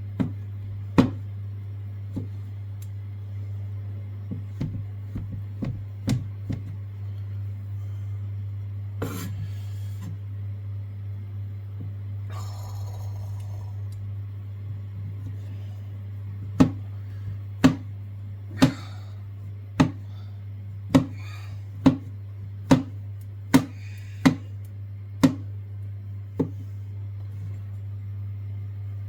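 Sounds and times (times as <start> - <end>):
steady low hum: 0.0 - 29.0
knife chopping on a board: 0.2 - 0.4, 1.0 - 1.2, 16.6 - 16.8, 17.6 - 17.9, 18.6 - 19.0, 19.8 - 20.0, 20.9 - 24.5, 25.2 - 25.5, 26.4 - 26.6.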